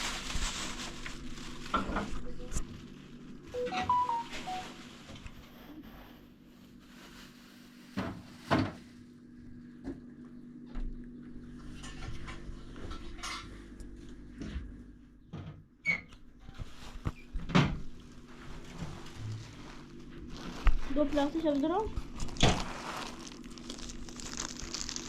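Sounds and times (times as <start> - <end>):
knocks and clatters of household things: 0.0 - 2.3, 7.9 - 8.9, 11.6 - 15.7, 16.4 - 21.1.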